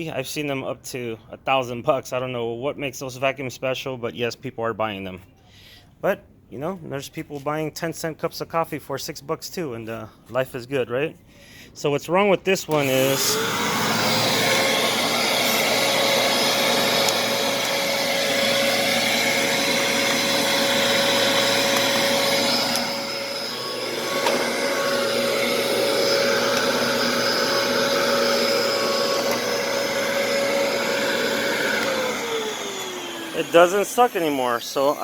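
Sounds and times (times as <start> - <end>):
vacuum cleaner motor whine: 12.7 - 35.0.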